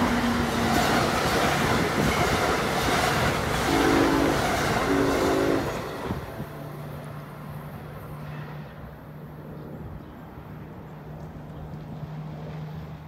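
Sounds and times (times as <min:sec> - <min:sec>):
passing train rumble: 0:00.0 - 0:13.0
train horn blast: 0:03.5 - 0:06.5.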